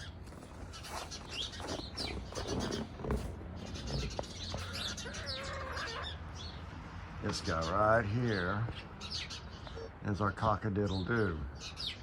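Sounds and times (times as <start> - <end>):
birds chirping: 0.0 - 12.0
long drawn-out bird call: 4.5 - 6.2.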